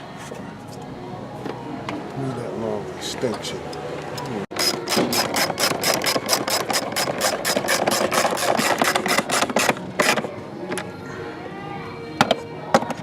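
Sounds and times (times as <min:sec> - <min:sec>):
ratchet wrench clicking rapidly: 0:04.5 - 0:10.2.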